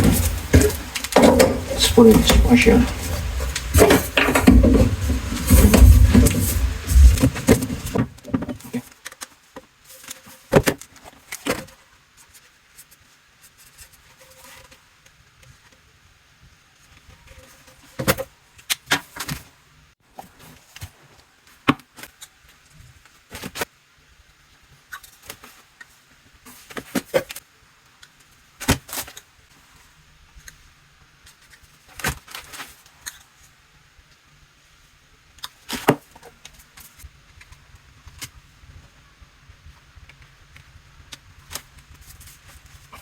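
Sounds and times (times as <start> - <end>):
hoses and tools clattering: 0.0 - 8.5.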